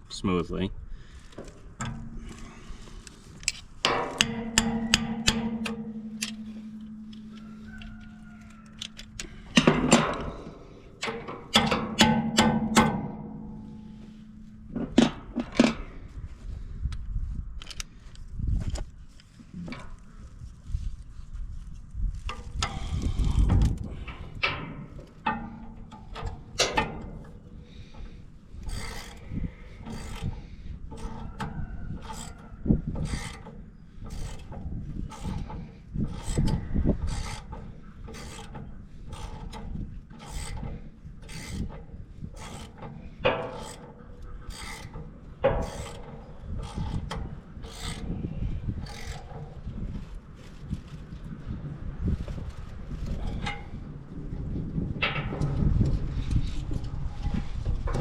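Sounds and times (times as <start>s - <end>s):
metal clinks and knocks: 3.4s - 15.9s
ratchet wrench strokes: 28.6s - 32.4s, 33.0s - 33.5s, 34.1s - 41.8s, 42.4s - 48.1s, 48.8s - 49.6s.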